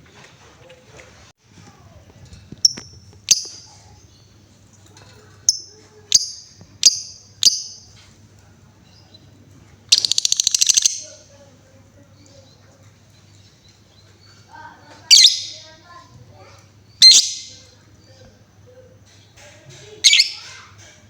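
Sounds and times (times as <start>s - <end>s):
lovebird rattling trill: 9.9s - 11.2s.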